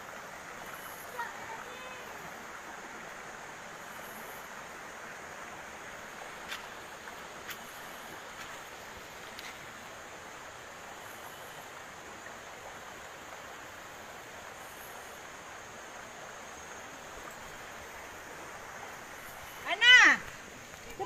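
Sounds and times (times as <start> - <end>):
waterfall rushing: 0.9 - 3.2.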